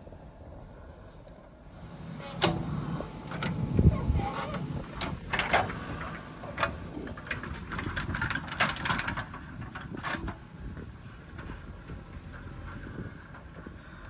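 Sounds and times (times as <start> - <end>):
short clatters and scrapes: 3.3 - 10.4.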